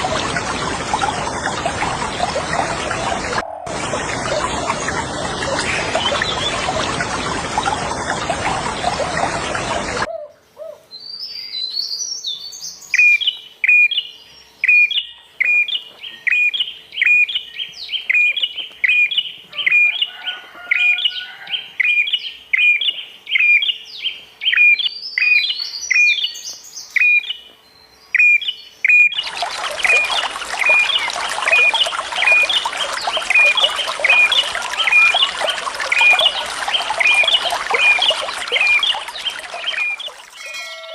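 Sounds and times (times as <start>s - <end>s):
rushing water: 0.0s - 10.1s, 29.1s - 40.9s
birds twittering: 11.2s - 40.9s.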